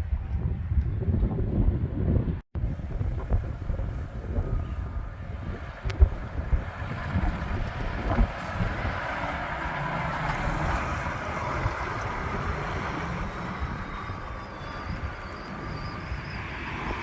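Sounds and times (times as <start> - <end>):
wind buffeting microphone: 0.0 - 17.0
truck engine driving past: 3.8 - 17.0.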